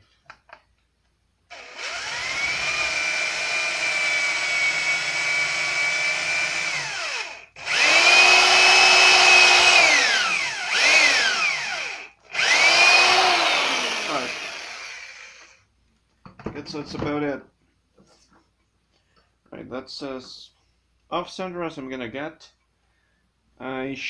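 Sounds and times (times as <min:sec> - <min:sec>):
electric drill motor whining: 0:01.5 - 0:15.6.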